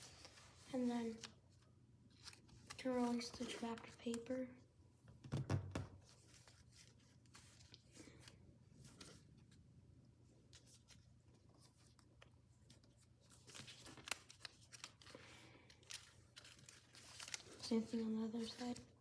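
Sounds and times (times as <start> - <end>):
paper rustling and crinkling: 0.0 - 4.4, 6.0 - 9.6, 10.4 - 19.0.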